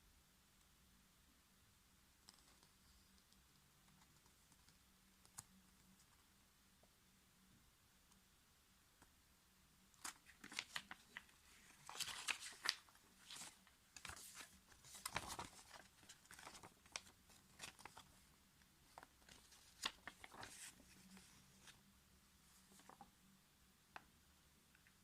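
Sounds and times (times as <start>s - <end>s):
crinkling rustles: 10.0s - 18.2s, 18.9s - 21.8s.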